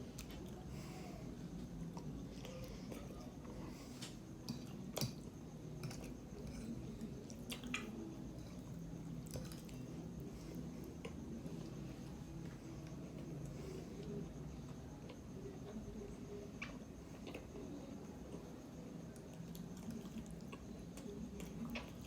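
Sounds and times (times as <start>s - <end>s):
person chewing wetly: 4.7s - 8.0s, 16.6s - 17.6s, 19.2s - 22.0s.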